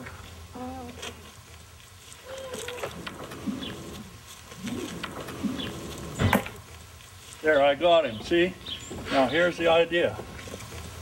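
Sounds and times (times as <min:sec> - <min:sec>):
farmyard birds calling: 0:02.1 - 0:10.8.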